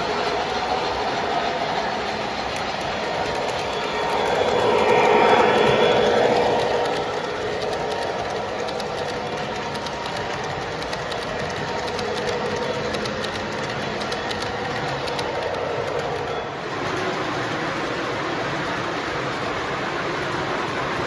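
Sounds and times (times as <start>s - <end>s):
wheels clicking over rail joints: 0.0s - 16.5s
model train rolling hum: 0.0s - 21.0s.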